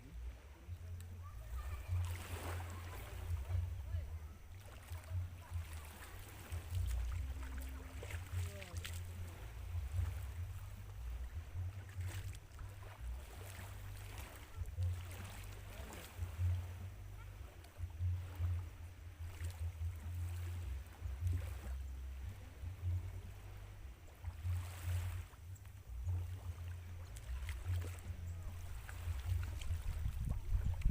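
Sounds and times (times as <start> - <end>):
wind buffeting microphone: 15.6 - 30.9.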